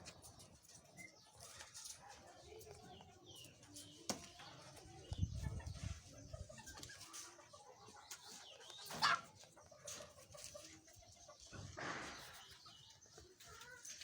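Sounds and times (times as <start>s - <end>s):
fowl clucking and calling: 5.5s - 12.5s.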